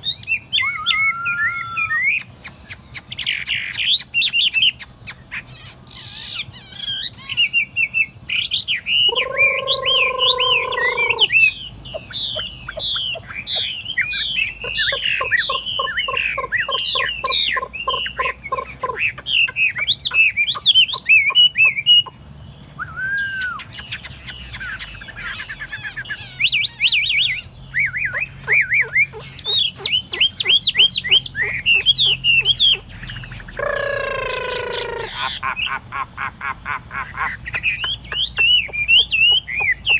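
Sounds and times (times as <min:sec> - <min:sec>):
bird singing whistled phrases: 0:00.0 - 0:22.1, 0:22.7 - 0:35.3
low nasal bird call: 0:08.9 - 0:39.9.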